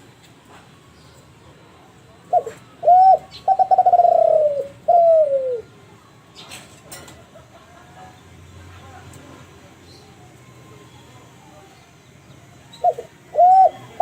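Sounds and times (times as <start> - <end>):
dove cooing: 2.2 - 5.7, 12.7 - 14.0.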